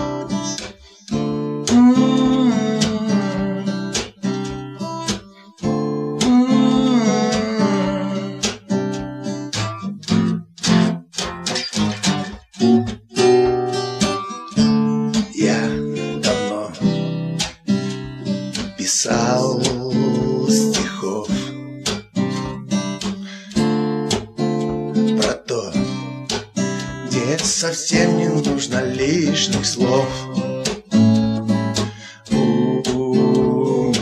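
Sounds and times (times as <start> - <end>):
person singing: 0.0 - 4.4, 5.2 - 8.6, 15.1 - 21.6, 22.2 - 23.7, 25.0 - 30.7, 31.7 - 34.0
acoustic guitar strumming: 0.0 - 34.0.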